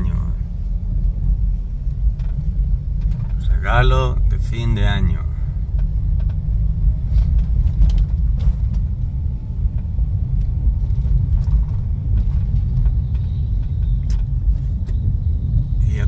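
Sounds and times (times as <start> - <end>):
low rumble of moving car: 0.0 - 16.0
faint clicks and rattles: 1.2 - 3.6.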